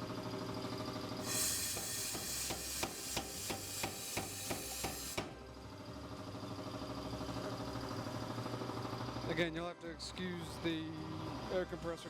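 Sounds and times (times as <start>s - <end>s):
air hissing: 1.2s - 5.3s
power hammer blows: 1.2s - 5.4s
air compressor humming: 1.2s - 8.1s.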